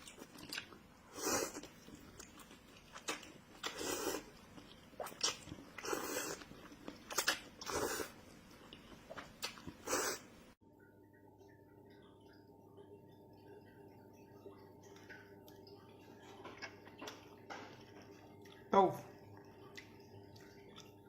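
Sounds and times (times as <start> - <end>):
person chewing and biting: 0.0 - 10.3.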